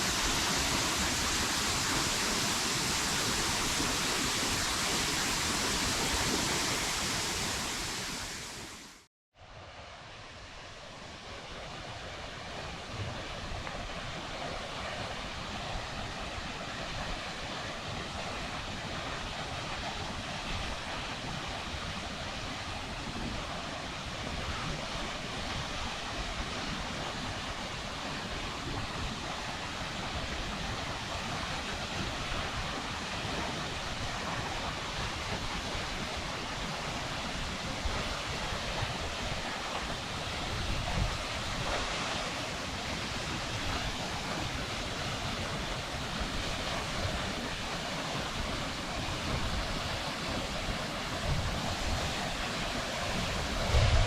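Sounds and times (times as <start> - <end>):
waterfall rushing: 0.0 - 9.1, 38.2 - 54.0
wind rumbling on microphone: 11.2 - 54.0.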